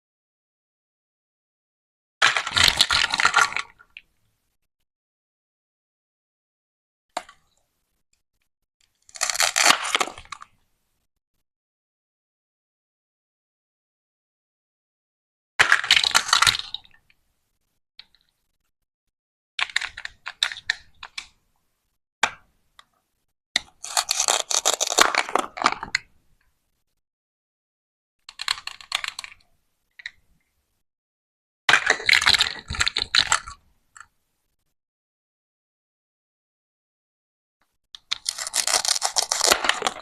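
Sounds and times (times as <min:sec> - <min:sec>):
plastic toy food being cut: 0:08.8 - 0:10.4, 0:23.6 - 0:26.0, 0:28.3 - 0:29.4, 0:38.0 - 0:40.0.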